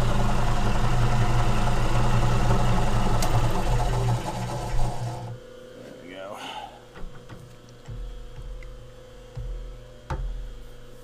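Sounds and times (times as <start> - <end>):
spindle motor humming: 0.0 - 5.5.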